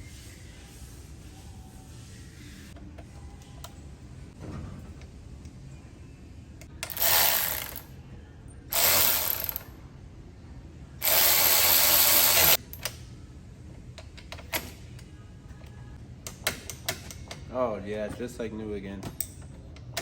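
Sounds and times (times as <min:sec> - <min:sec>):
ratchet wrench clicking: 0:06.8 - 0:07.8, 0:08.7 - 0:09.7, 0:11.0 - 0:12.9.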